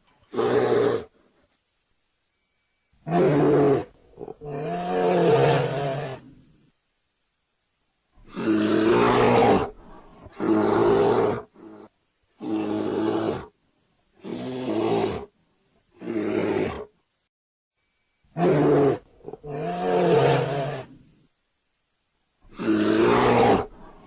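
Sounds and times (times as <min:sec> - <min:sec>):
bear roaring: 0:03.0 - 0:06.4, 0:08.2 - 0:13.5, 0:16.0 - 0:16.9, 0:18.3 - 0:21.1, 0:22.5 - 0:24.0.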